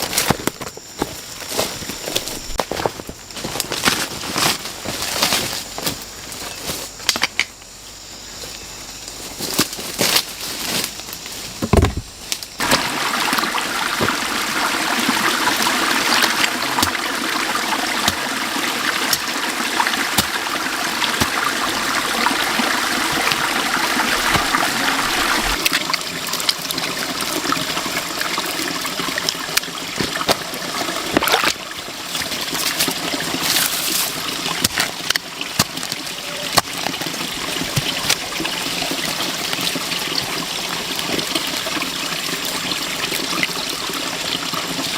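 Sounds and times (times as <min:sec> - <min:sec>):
running water: 0:12.6 - 0:44.9.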